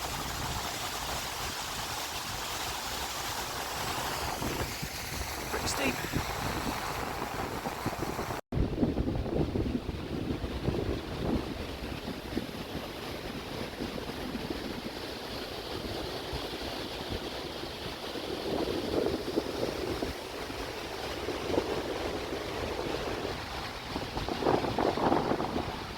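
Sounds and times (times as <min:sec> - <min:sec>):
water rushing: 0:00.0 - 0:08.4
wind gusting on microphone: 0:00.0 - 0:25.9.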